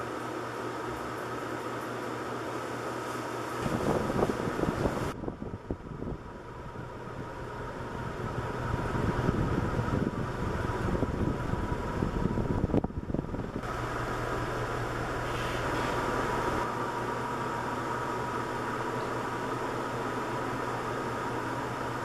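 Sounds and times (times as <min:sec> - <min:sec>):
ceiling fan air rushing: 0:00.0 - 0:22.0
low rumble: 0:05.0 - 0:14.0.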